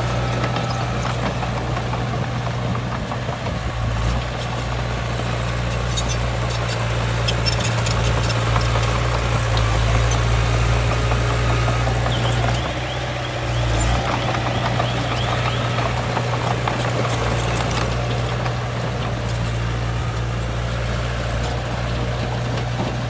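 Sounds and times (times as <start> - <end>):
diesel engine droning: 0.0 - 23.0.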